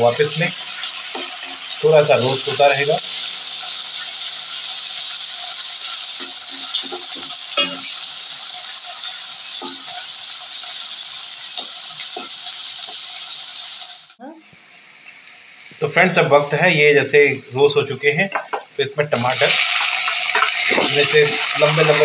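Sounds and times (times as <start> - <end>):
onions sizzling in hot oil: 0.0 - 17.8, 19.1 - 22.0
spatula scraping a metal pan: 6.1 - 8.0.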